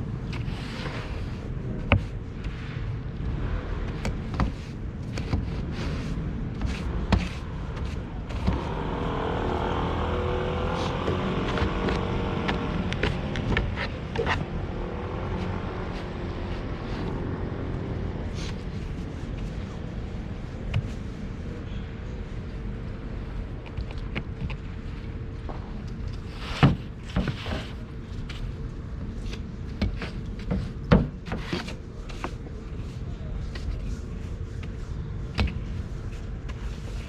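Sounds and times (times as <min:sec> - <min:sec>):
low vehicle rumble: 0:00.0 - 0:26.2
knocks and scraping of snow: 0:00.3 - 0:02.8.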